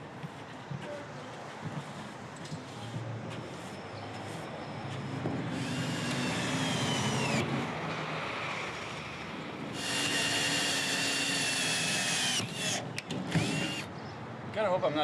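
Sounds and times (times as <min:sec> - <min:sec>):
power drill motor whining: 0:05.5 - 0:07.5, 0:09.8 - 0:13.9.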